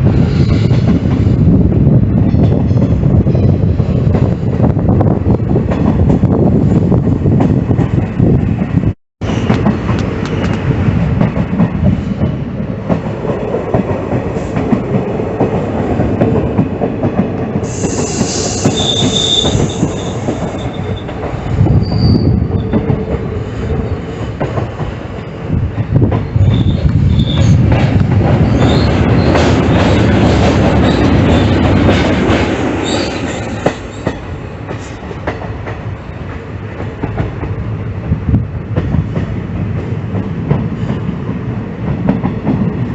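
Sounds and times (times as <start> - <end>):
train wheels rumbling on track: 0.0 - 42.9
high metallic wheel squeal: 18.0 - 21.1, 21.7 - 22.7, 26.4 - 27.6, 28.4 - 29.3, 32.8 - 34.0.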